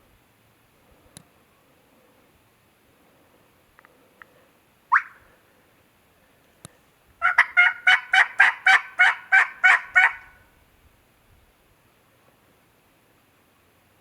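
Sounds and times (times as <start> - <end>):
turkey call yelping: 4.9 - 5.3, 7.2 - 10.4.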